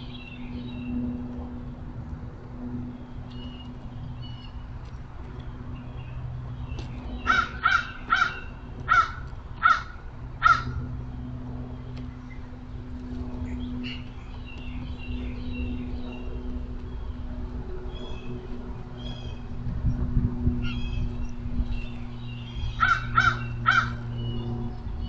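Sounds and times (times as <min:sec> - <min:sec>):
steady low hum: 0:00.0 - 0:25.0
small birds chirping: 0:03.0 - 0:09.0, 0:11.7 - 0:19.6
crow cawing: 0:07.2 - 0:10.8, 0:22.8 - 0:24.0.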